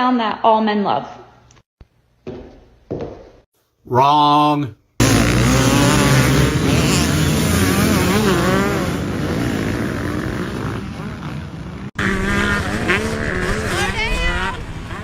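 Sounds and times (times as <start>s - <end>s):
voices: 3.9s - 8.9s, 12.0s - 15.0s
dirt bike engine revving: 5.0s - 15.0s.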